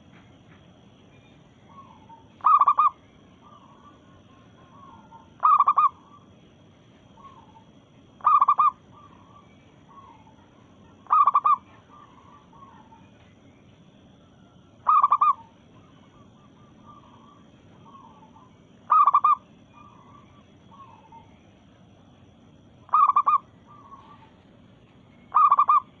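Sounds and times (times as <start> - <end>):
dove cooing: 1.7 - 6.4, 7.2 - 13.1, 14.2 - 21.4, 22.9 - 24.5, 25.3 - 26.0.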